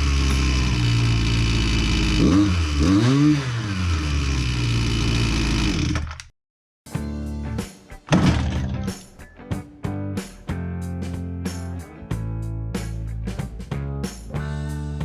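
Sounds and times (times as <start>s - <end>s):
string trimmer engine revving: 0.0s - 6.2s
music: 6.9s - 15.0s.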